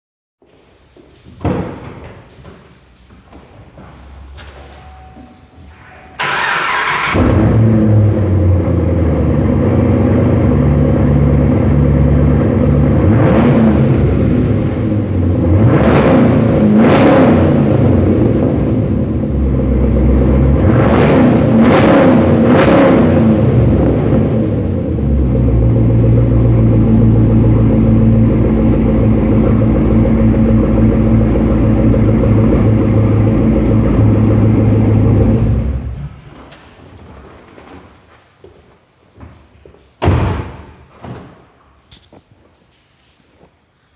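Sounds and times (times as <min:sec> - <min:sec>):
car engine starting and revving: 0:06.2 - 0:36.2.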